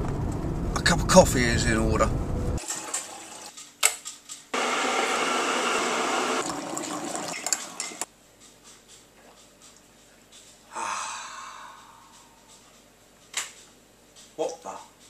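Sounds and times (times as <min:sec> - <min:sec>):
coffee pouring into cup: 0:06.4 - 0:08.0.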